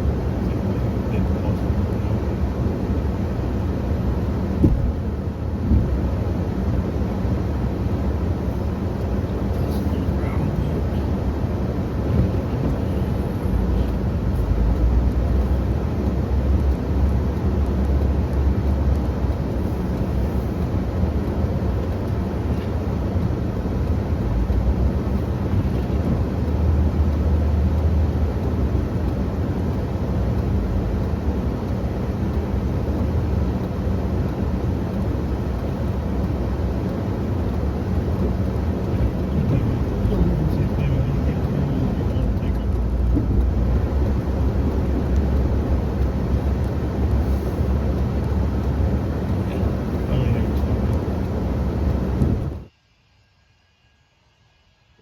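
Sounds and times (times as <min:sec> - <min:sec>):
machine engine rumbling: 0:34.9 - 0:52.7.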